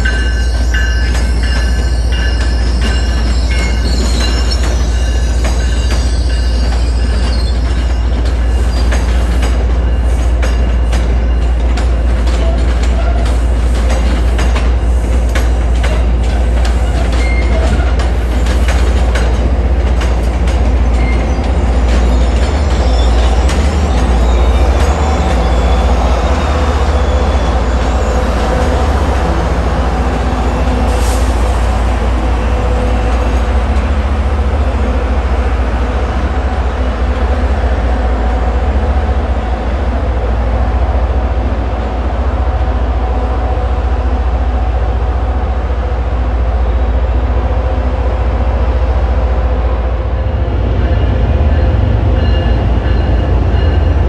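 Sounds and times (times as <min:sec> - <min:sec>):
train wheels clicking over joints: 0:00.0 - 0:34.0
train low rumble: 0:00.0 - 0:54.0.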